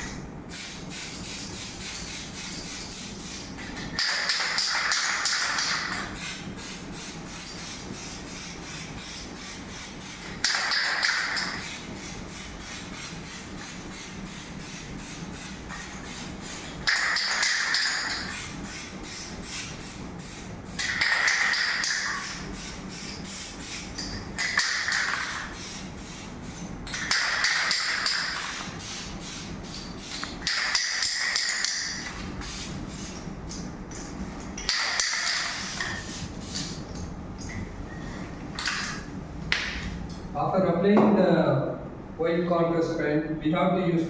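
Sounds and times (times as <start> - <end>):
aerosol can spraying: 0.5 - 33.6, 34.7 - 36.8.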